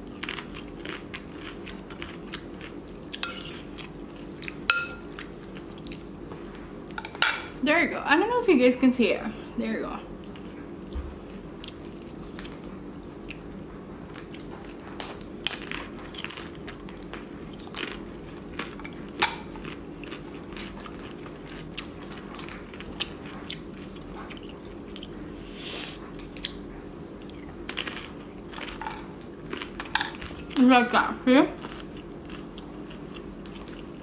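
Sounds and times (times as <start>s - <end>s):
chewing with sharp crunches: 0.0s - 6.2s, 14.1s - 30.6s, 31.5s - 34.0s.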